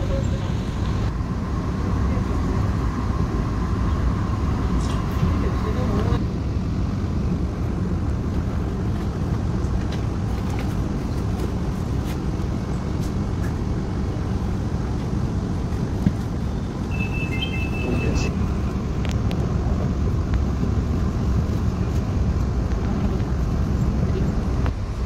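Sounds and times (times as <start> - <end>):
vehicle rumble in motion: 0.0 - 25.0
high-pitched beep: 16.9 - 18.3.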